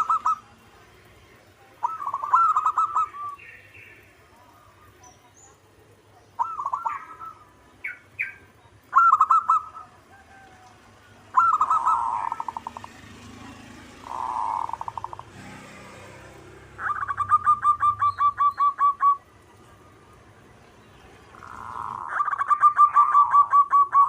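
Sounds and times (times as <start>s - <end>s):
dove cooing and trilling: 0.0s - 0.6s, 1.7s - 3.9s, 6.2s - 15.4s, 16.7s - 20.2s, 21.2s - 24.0s.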